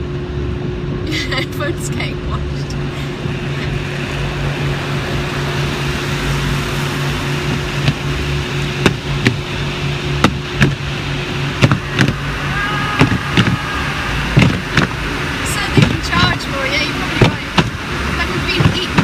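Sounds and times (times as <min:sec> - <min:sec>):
car wash machinery drone: 0:00.0 - 0:19.0
spraying water: 0:02.8 - 0:19.0
sharp knocks on car: 0:08.8 - 0:09.4, 0:10.2 - 0:10.8, 0:11.6 - 0:12.2, 0:14.4 - 0:15.0, 0:15.8 - 0:16.1, 0:17.2 - 0:17.8.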